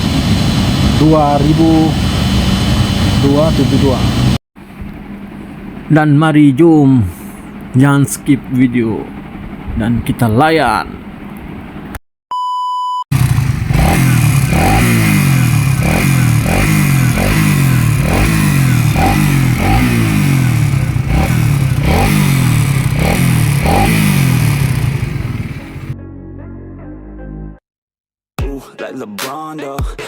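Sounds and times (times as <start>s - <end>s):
motorcycle engine revving: 0.0s - 4.4s, 13.1s - 26.0s
short electronic beep: 12.3s - 13.0s.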